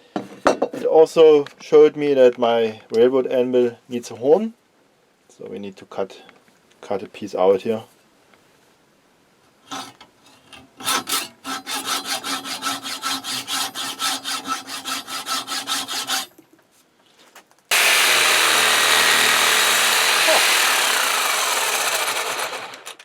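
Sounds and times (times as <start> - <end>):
hand saw strokes: 9.7 - 16.4, 17.7 - 23.0
power tool running: 17.7 - 23.0.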